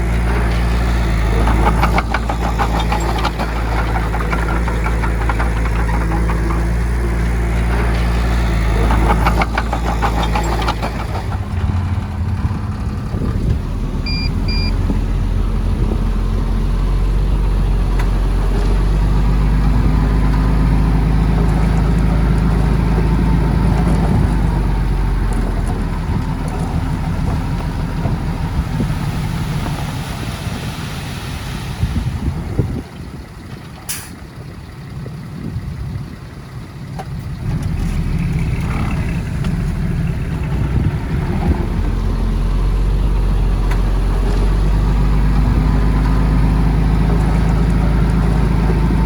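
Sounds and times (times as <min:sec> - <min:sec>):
heavy diesel engine running: 0:00.0 - 0:49.0
short high beeps: 0:14.1 - 0:14.7.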